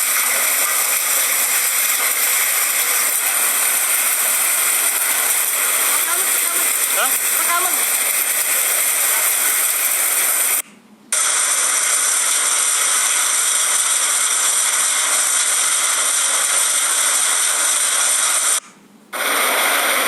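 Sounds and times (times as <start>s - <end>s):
heavy rain: 0.0s - 10.6s.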